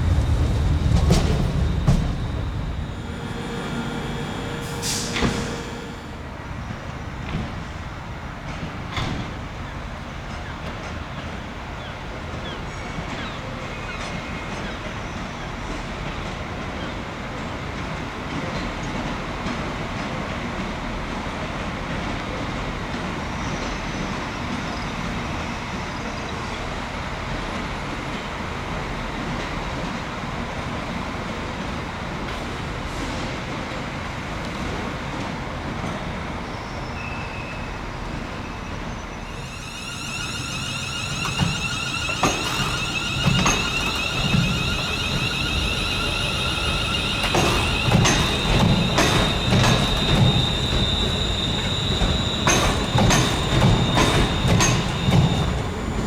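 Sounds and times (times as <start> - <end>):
diesel train rumble: 0.0 - 23.4, 25.6 - 56.0
rail noise: 0.0 - 56.0.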